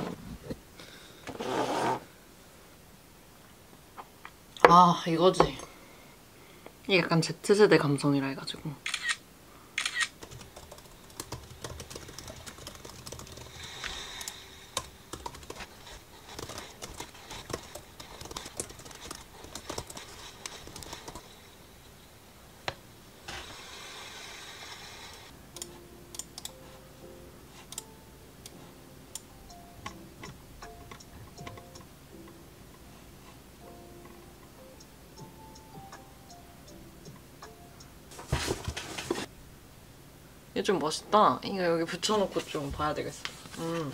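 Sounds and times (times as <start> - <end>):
typing on laptop keyboard: 9.9 - 21.3
soft background music: 24.1 - 39.4.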